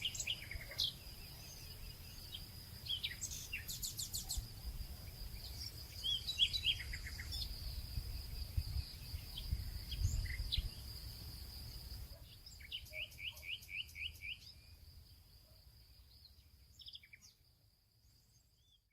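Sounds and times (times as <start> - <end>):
bird repeated chirps: 0.0 - 4.5, 12.2 - 14.6
small birds chirping: 0.0 - 18.9.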